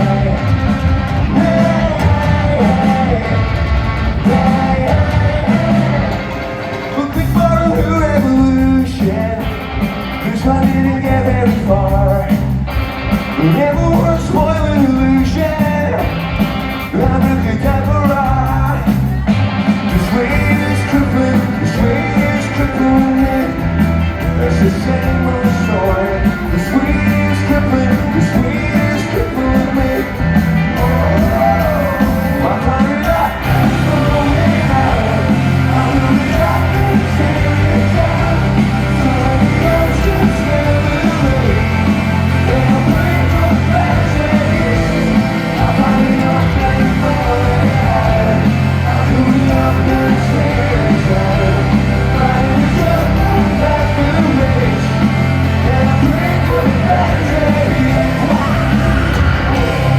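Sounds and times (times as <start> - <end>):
person singing: 0.0 - 12.6, 19.9 - 59.9
rock band playing live: 0.0 - 59.9.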